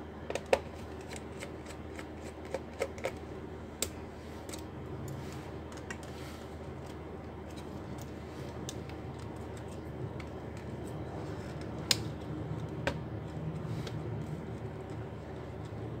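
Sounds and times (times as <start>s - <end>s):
low hum: 3.2s - 16.0s.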